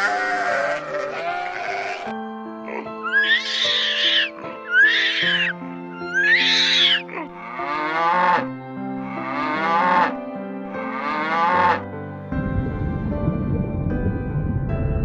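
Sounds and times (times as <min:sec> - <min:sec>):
cow mooing: 0:00.0 - 0:02.1, 0:06.4 - 0:10.2, 0:10.8 - 0:11.8
background music: 0:00.0 - 0:15.0.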